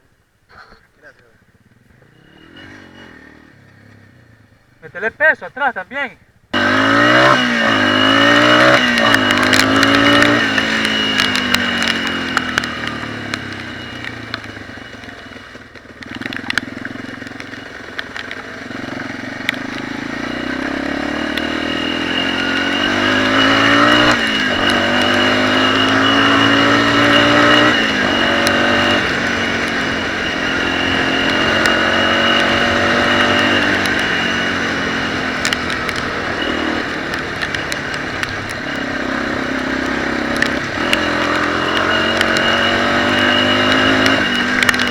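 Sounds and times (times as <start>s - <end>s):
off-road motorcycle engine revving: 0.5s - 44.9s.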